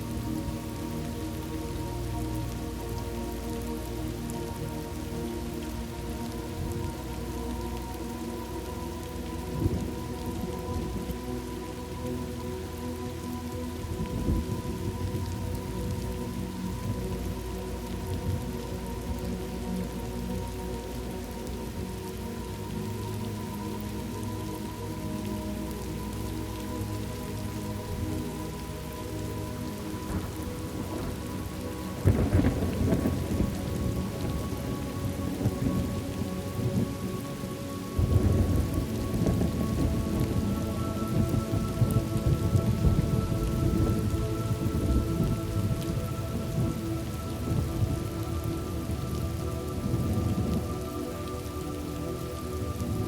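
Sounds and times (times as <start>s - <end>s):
steady rain: 0.0s - 53.0s
thunder rumbling: 13.9s - 19.2s, 30.0s - 37.0s, 38.0s - 51.4s.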